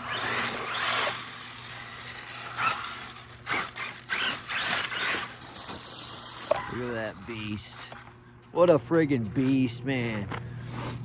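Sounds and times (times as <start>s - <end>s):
electric motor whining: 0.0s - 6.6s.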